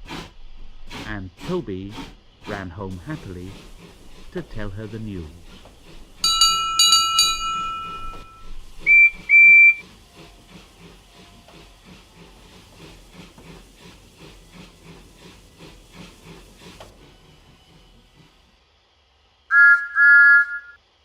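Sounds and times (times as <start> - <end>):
steam engine chuffing: 0.0 - 19.7
steam locomotive chord whistle: 6.2 - 12.0, 19.5 - 20.8
high whistle toots: 7.6 - 9.8, 19.5 - 20.8.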